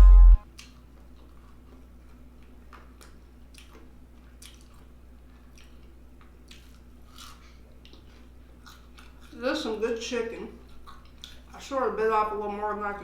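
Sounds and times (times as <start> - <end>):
faint steady hum: 0.0 - 13.0
chewing mouth clicks and smacks: 0.5 - 9.4, 10.6 - 11.6.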